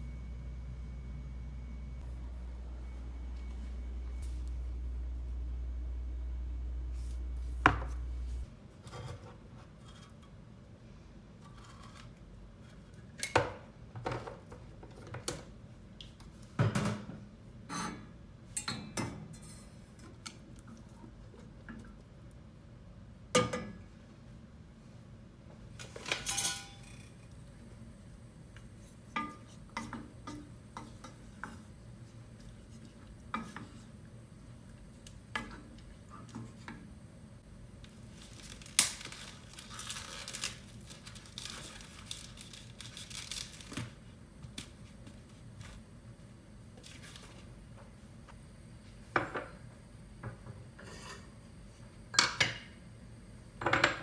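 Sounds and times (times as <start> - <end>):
dishes and cutlery clinking: 26.0 - 27.0.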